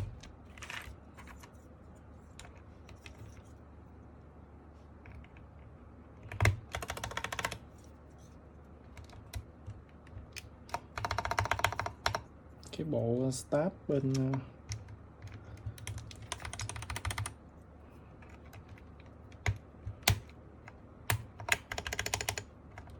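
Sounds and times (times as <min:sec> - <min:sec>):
keyboard keys clicking: 0:06.2 - 0:07.6, 0:08.9 - 0:12.2, 0:14.0 - 0:17.4, 0:18.2 - 0:22.9
rapid keyboard clicking: 0:06.2 - 0:07.6, 0:08.9 - 0:12.3, 0:14.0 - 0:17.4, 0:18.2 - 0:22.9.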